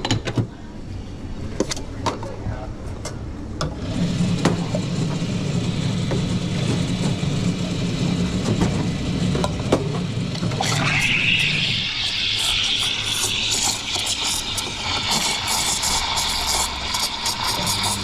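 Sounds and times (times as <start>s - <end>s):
coffee machine motor humming: 3.7s - 18.0s
steam wand hissing: 10.5s - 18.0s.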